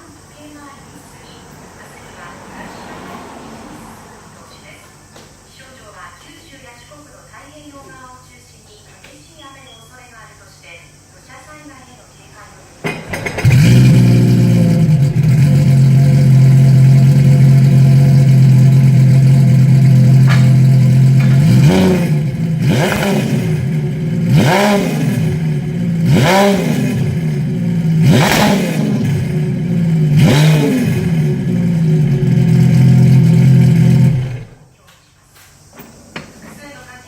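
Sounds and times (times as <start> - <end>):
watercraft engine idling and revving: 12.9 - 34.6.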